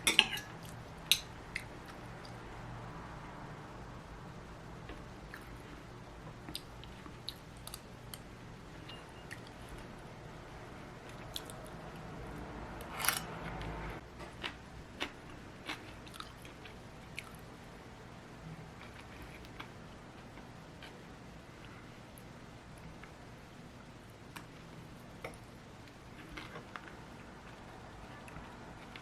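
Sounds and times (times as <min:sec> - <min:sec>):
chewing: 0:14.2 - 0:17.4.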